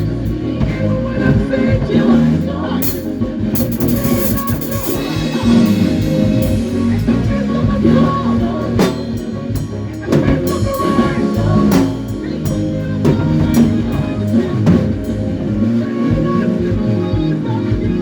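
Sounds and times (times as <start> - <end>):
band playing worship song: 0.0 - 18.0
cymbal crashes: 2.8 - 7.5.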